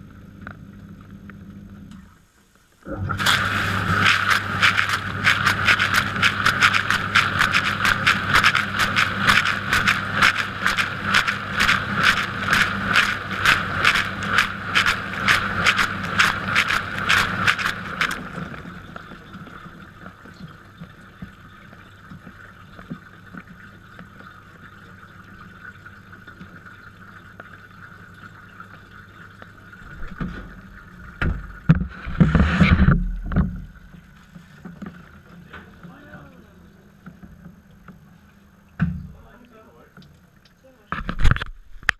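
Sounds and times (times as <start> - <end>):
dishwasher pump humming: 2.8 - 41.0
water spraying in pulses: 2.9 - 25.0.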